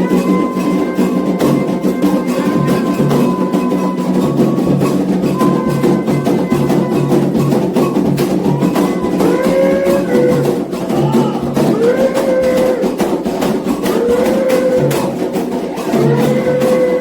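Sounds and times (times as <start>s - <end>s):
hand drums playing fast rhythm: 0.0s - 17.0s
voices chanting: 0.0s - 17.0s.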